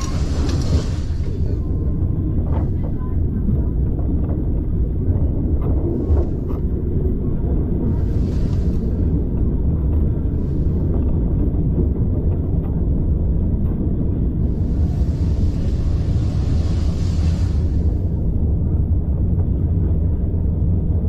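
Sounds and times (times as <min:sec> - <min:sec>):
railway carriage rumble: 0:00.0 - 0:21.0
high hiss: 0:14.6 - 0:18.0.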